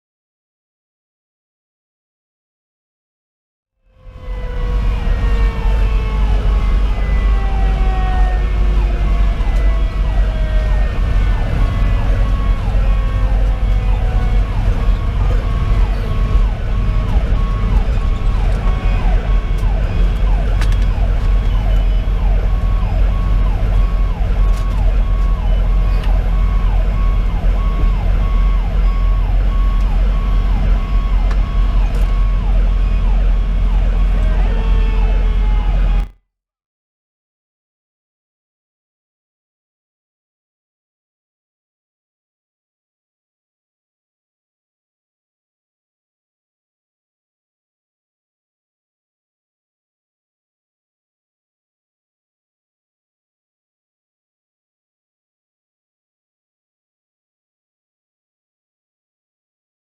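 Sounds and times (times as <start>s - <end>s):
fire engine siren wailing: 3.8s - 36.2s
diesel engine running: 4.0s - 36.1s.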